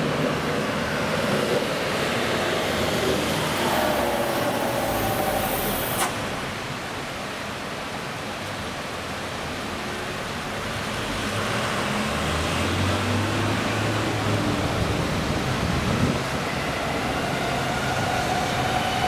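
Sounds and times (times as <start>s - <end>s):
click: 3.4s - 6.3s.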